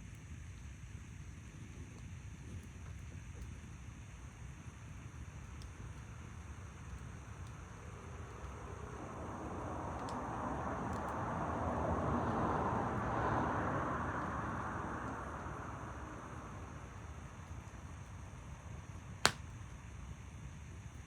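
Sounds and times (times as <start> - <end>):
distant vehicle passing: 9.0 - 16.9.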